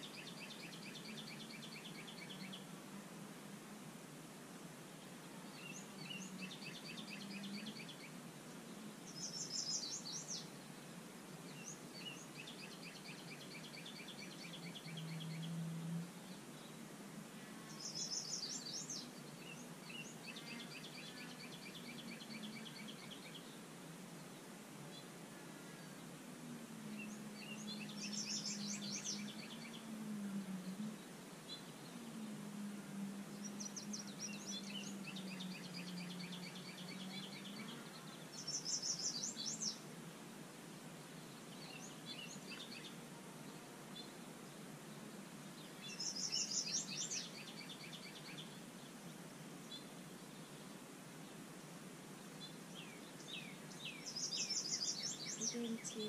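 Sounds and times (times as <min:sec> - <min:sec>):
outdoor background noise: 0:00.0 - 0:56.0
songbird trilling: 0:27.0 - 0:29.8, 0:33.4 - 0:39.8, 0:45.7 - 0:48.6, 0:52.8 - 0:56.0.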